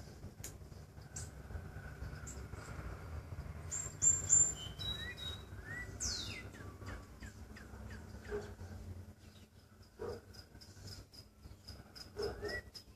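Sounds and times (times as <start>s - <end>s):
bird singing: 3.4s - 12.9s.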